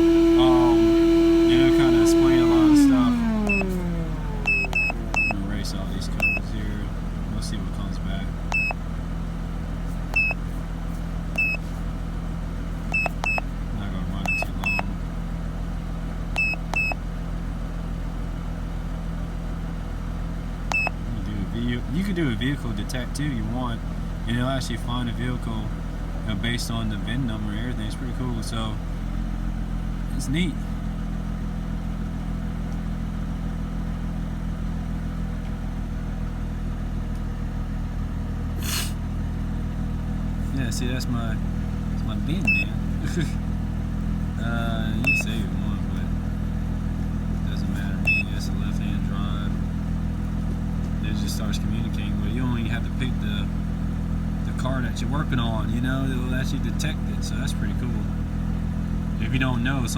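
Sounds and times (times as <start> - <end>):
short electronic beeps: 0.0 - 6.6, 8.5 - 8.8, 10.1 - 10.4, 11.4 - 11.7, 12.9 - 13.5, 14.2 - 14.9, 16.4 - 17.0, 20.7 - 21.0, 42.4 - 42.8, 45.0 - 45.5, 48.0 - 48.4
car engine idling: 0.0 - 59.9.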